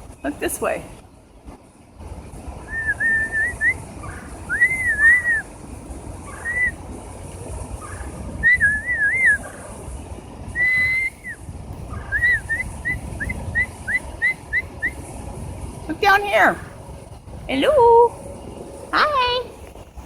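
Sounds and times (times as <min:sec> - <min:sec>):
bird singing whistled phrases: 0:04.5 - 0:05.5, 0:12.1 - 0:15.0.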